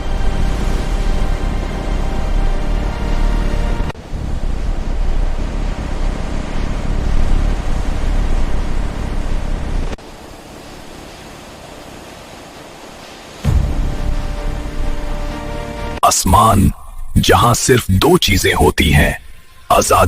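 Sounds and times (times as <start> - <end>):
rushing roar with deep rumble: 0.0 - 10.8.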